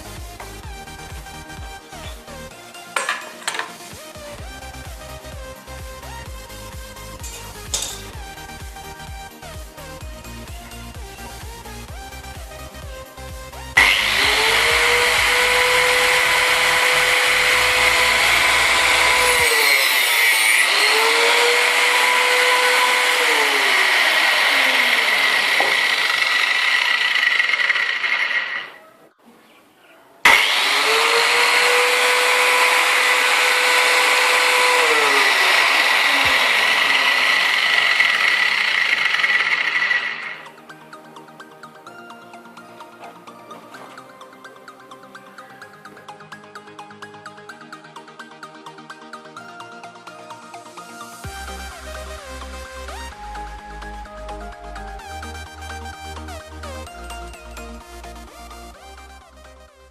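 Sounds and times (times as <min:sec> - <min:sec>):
background music: 0:00.0 - 0:27.2, 0:30.2 - 0:59.9
angle grinder whining: 0:00.0 - 0:28.8, 0:30.2 - 0:41.8.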